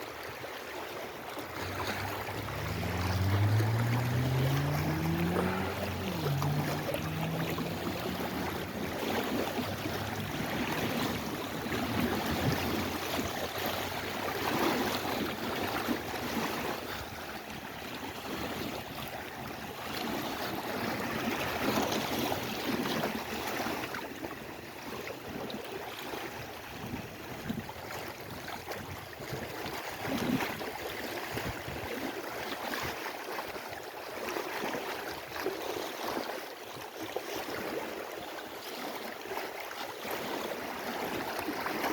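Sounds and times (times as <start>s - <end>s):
waves lapping against shore: 0.0s - 41.9s.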